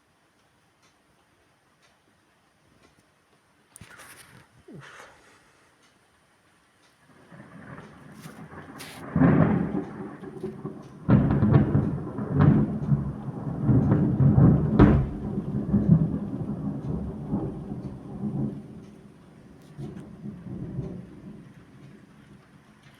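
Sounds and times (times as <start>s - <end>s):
rolling thunder rumble: 7.2s - 22.9s
thunder crack: 7.3s - 22.9s
thunder crash: 7.4s - 18.9s, 19.8s - 21.8s.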